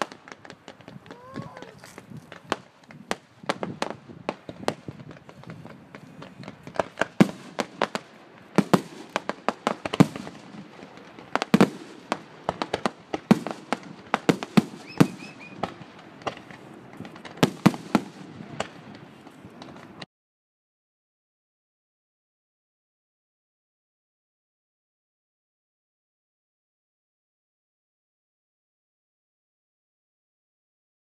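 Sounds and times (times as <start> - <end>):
fireworks bangs and pops: 0.0 - 20.1.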